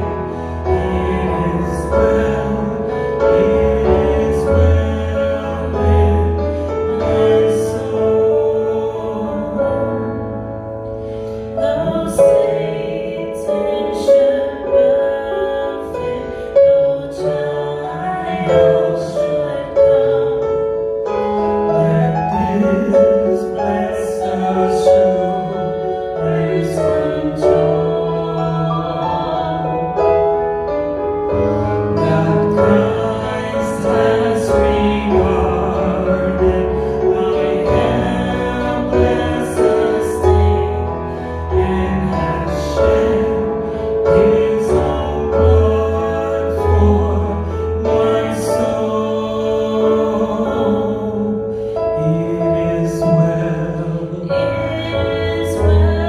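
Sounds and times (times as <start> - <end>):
person singing worship song: 0.0 - 10.2, 31.4 - 56.0
piano accompaniment: 0.0 - 56.0.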